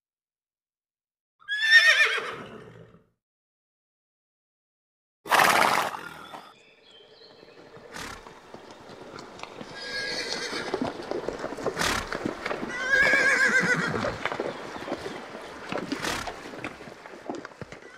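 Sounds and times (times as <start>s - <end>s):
horses neighing: 1.4s - 2.8s, 7.5s - 17.9s.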